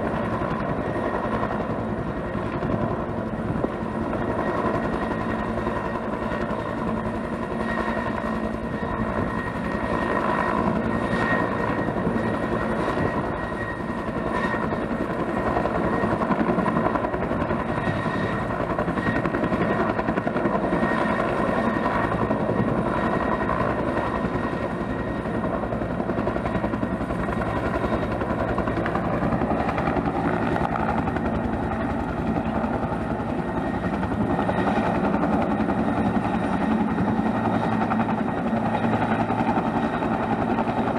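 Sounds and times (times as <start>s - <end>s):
helicopter rotor beating: 0.0s - 40.9s
turbine whine: 29.6s - 35.0s.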